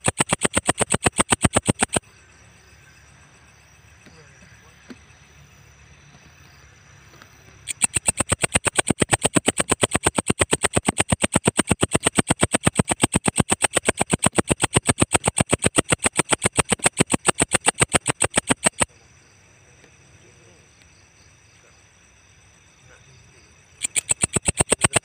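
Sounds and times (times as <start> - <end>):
insect calling dry ticks: 0.0 - 2.0, 7.2 - 18.9, 23.8 - 25.0.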